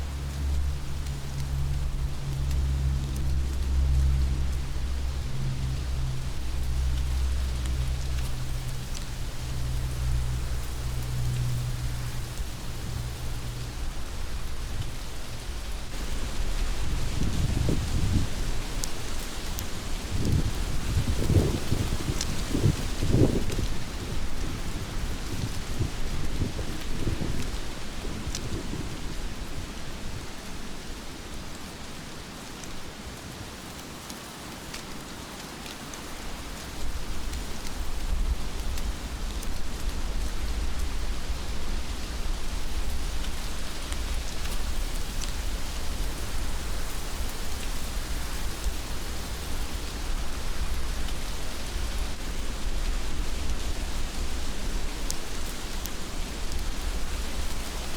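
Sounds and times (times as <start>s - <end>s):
thunder rumbling: 0.0s - 29.8s
heavy rain: 0.0s - 57.9s.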